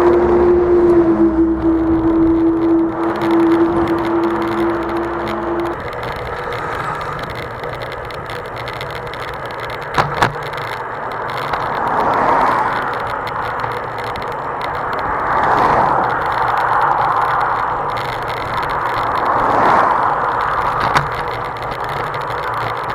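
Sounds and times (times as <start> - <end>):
wind buffeting microphone: 0.0 - 10.5
bike tyres on dirt road: 0.0 - 22.9
sharp clicks: 1.5 - 22.9.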